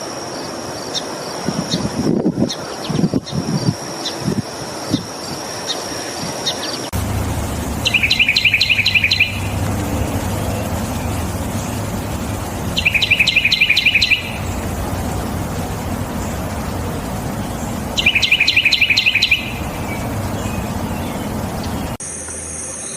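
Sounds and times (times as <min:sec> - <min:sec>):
low background rumble: 0:07.0 - 0:22.0
songbird sharp chirps: 0:07.0 - 0:22.0.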